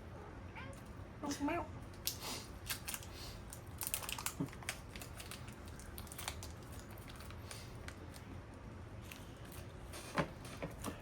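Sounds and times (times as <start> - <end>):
plastic wrapper crinkling and clicking: 1.9 - 8.3.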